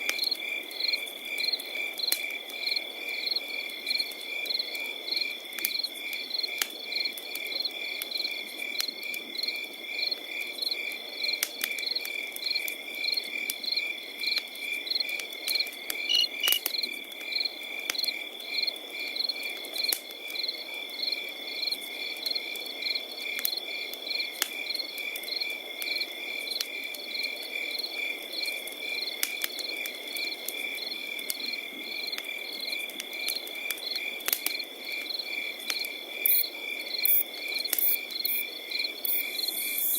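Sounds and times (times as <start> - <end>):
campfire crackling and popping: 0.0 - 20.4, 21.2 - 27.5, 28.1 - 38.3
crickets chirping: 15.8 - 17.5, 36.2 - 39.9
high insect trill: 16.0 - 16.7, 36.2 - 39.9.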